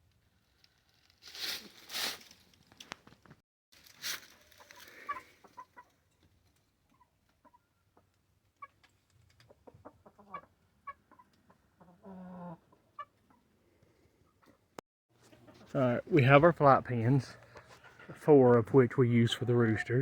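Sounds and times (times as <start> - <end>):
rustle: 0.4 - 3.2, 3.8 - 7.4
roosters clucking: 4.4 - 6.1, 6.9 - 13.5, 15.2 - 20.0.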